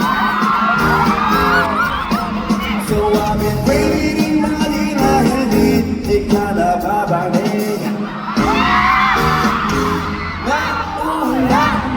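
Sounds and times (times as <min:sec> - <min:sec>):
audience whooping: 0:00.0 - 0:04.0, 0:07.9 - 0:11.9
live pop song with singer and band: 0:00.0 - 0:11.9.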